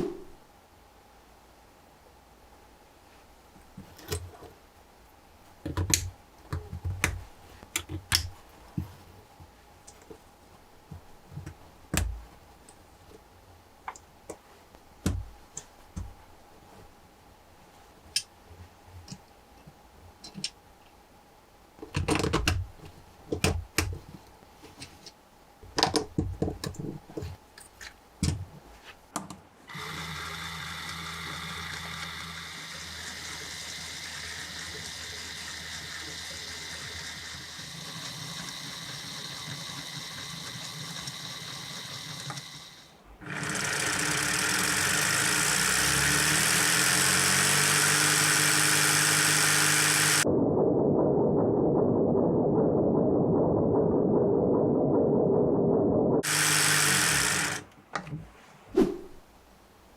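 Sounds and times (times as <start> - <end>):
motor-driven model whirring: 29.7 - 50.3, 56.2 - 57.7.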